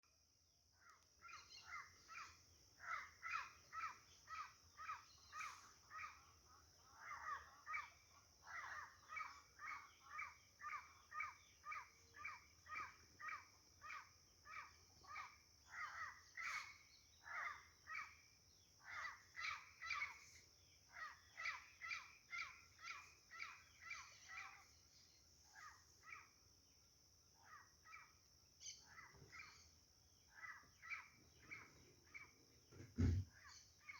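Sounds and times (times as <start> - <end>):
harsh cawing bird calls: 1.3 - 18.2.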